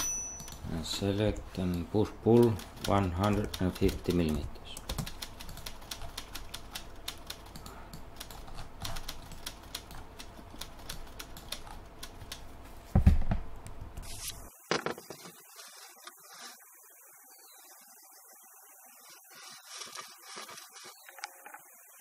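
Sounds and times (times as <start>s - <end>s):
keyboard and mouse clicking: 1.3s - 12.4s.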